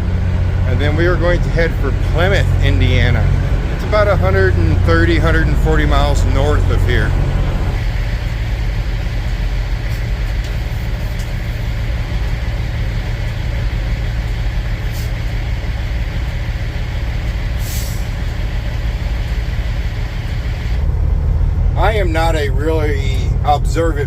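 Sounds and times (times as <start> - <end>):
truck diesel engine rumbling: 0.0 - 24.0
air brake hiss: 14.8 - 15.3, 17.6 - 18.2.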